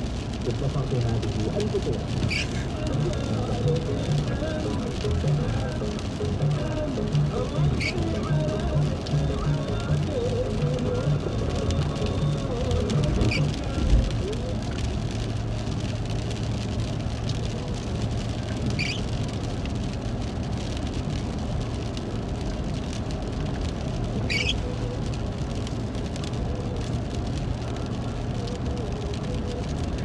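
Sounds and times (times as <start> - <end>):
car engine and road noise: 0.0 - 30.0
rain on vehicle: 0.0 - 30.0
short high squeaks: 2.3 - 2.6, 18.8 - 19.1, 24.3 - 24.6.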